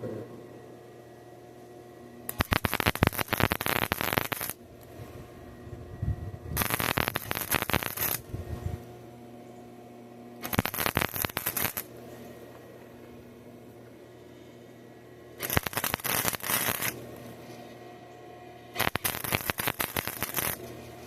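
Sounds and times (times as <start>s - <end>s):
welding arc crackling: 2.3s - 5.0s, 6.6s - 8.4s, 10.4s - 11.9s, 15.4s - 17.2s, 18.8s - 21.0s.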